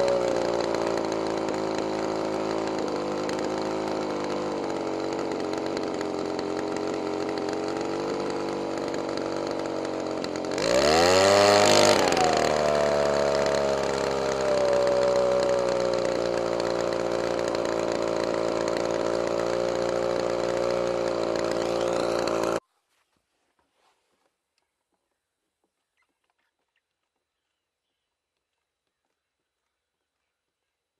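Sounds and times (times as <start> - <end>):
small engine running and revving: 0.0 - 22.6.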